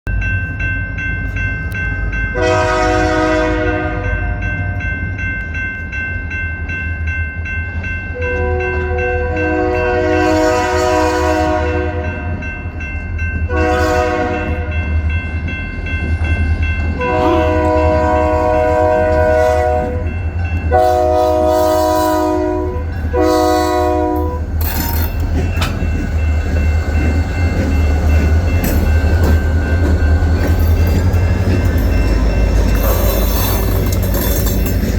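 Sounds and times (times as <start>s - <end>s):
rail and wheel noise: 0.1s - 34.9s
locomotive air horn blasts: 2.4s - 4.4s, 8.2s - 12.4s, 13.5s - 14.8s, 17.0s - 20.1s, 20.7s - 24.8s.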